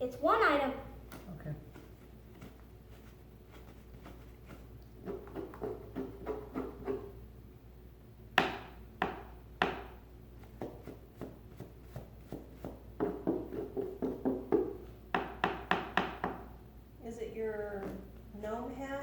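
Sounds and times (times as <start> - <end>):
sharp knocks: 8.4 - 10.0, 12.3 - 16.5.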